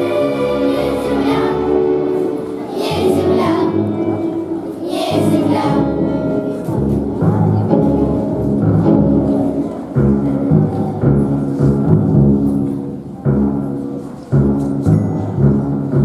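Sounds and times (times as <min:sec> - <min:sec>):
children's choir singing: 0:00.0 - 0:11.5
instrumental accompaniment: 0:00.0 - 0:16.0.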